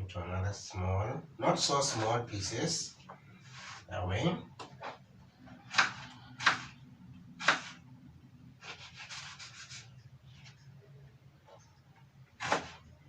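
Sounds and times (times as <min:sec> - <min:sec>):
knife chopping on board: 0:05.7 - 0:06.7, 0:07.4 - 0:07.8, 0:12.4 - 0:12.8.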